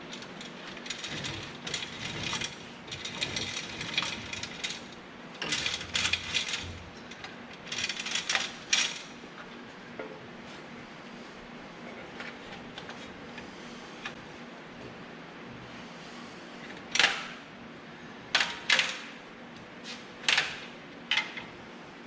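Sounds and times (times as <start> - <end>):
metal parts clicking and rattling: 0.0 - 9.1.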